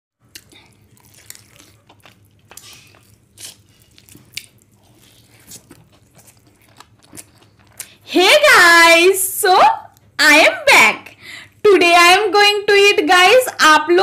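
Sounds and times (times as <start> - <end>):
person biting and chewing: 0.2 - 8.0.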